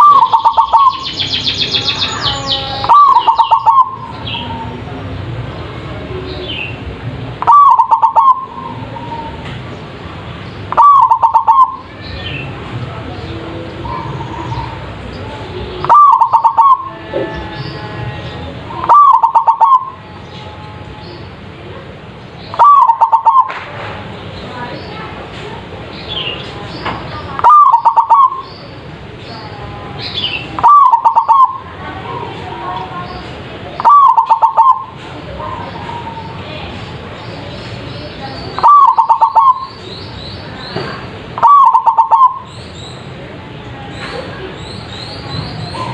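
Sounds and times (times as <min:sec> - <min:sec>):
dove cooing: 0:00.0 - 0:01.0, 0:02.8 - 0:04.8, 0:07.4 - 0:09.4, 0:10.7 - 0:11.9, 0:15.8 - 0:17.4, 0:18.7 - 0:20.0, 0:22.5 - 0:23.5, 0:27.4 - 0:28.4, 0:30.6 - 0:32.4, 0:33.8 - 0:36.3, 0:38.6 - 0:39.8, 0:41.4 - 0:42.5.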